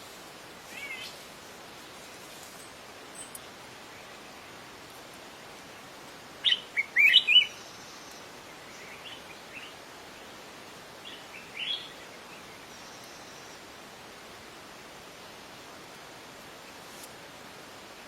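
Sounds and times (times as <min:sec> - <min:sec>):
songbird chirping: 0:00.0 - 0:04.7, 0:05.7 - 0:13.8
steady hiss: 0:00.0 - 0:18.0.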